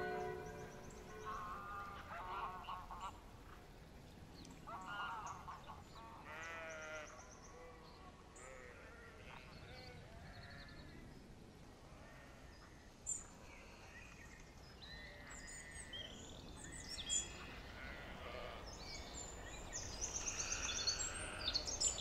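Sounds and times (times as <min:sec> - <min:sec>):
bird trill: 0:00.0 - 0:01.9
small birds chirping and singing: 0:13.1 - 0:22.0.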